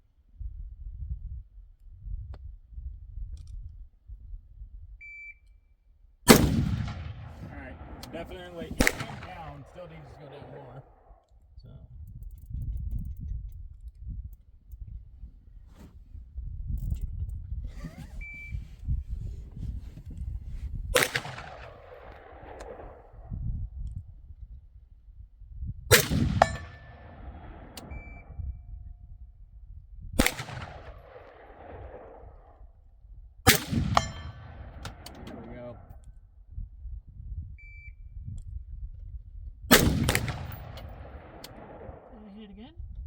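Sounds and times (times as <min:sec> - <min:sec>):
wind rumble on microphone: 0:00.0 - 0:05.1, 0:11.4 - 0:43.0
rifle shot: 0:06.3 - 0:11.0, 0:20.9 - 0:23.2, 0:25.9 - 0:28.2, 0:30.2 - 0:32.4, 0:33.5 - 0:35.8, 0:39.7 - 0:42.2.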